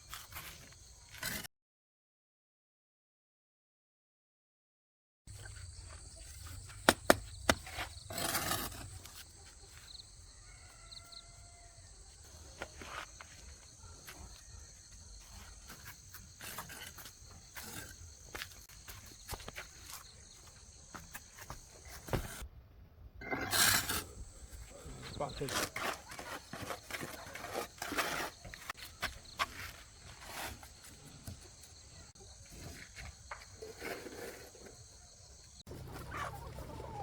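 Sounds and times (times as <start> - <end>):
insects droning: 5.3 - 22.4.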